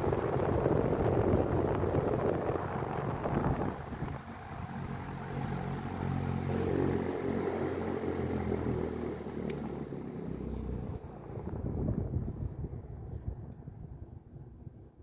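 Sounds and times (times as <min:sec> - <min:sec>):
fan motor humming: 0:00.0 - 0:13.1
air rushing from fan blades: 0:00.0 - 0:14.8
light click: 0:09.5 - 0:09.7.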